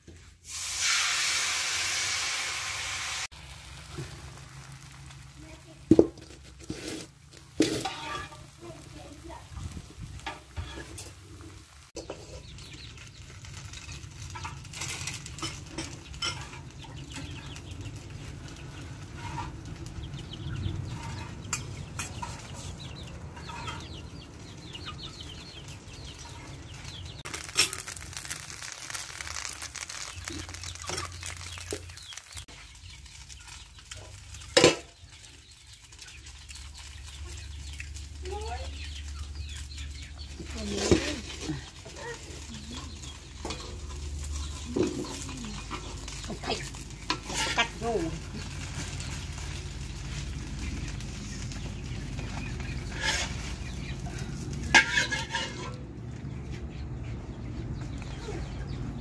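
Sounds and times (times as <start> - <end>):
batter sizzling in a wok: 0.0 - 22.5, 26.0 - 55.8
chickens clucking: 5.0 - 59.0
utensils clinking: 13.8 - 17.5, 40.4 - 49.2, 54.2 - 55.8.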